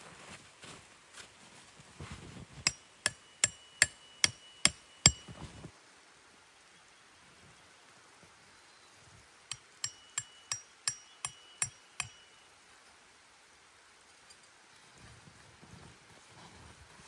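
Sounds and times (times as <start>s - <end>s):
soft scuffing: 0.0s - 2.6s
hammer striking metal: 2.7s - 5.4s, 9.5s - 12.4s.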